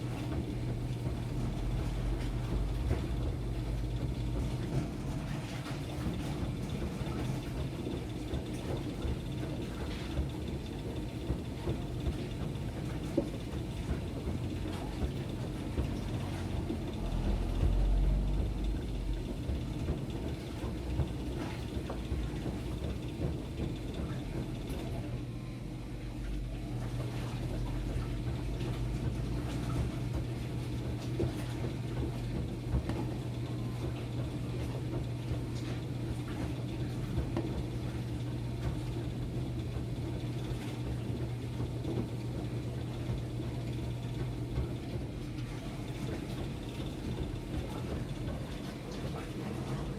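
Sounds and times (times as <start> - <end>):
washing machine motor hum: 0.0 - 49.9
water sloshing: 43.0 - 49.9.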